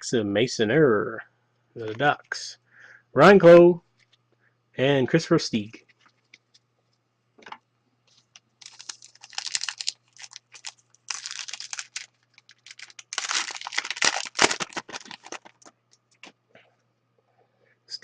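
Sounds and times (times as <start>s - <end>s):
foil wrapper crinkling and tearing: 8.6s - 16.2s.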